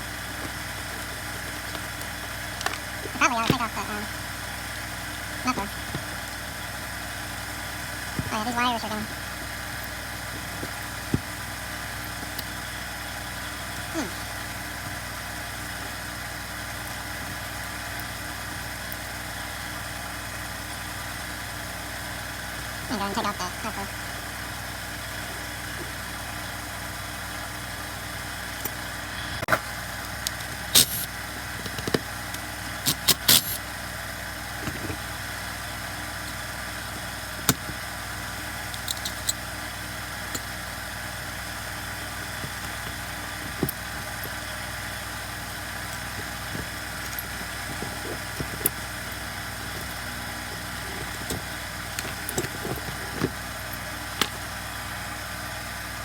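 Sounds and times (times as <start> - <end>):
steady mechanical hum: 0.0 - 56.0
hand tools clicking on metal: 30.1 - 33.6, 38.7 - 39.4, 45.8 - 54.4.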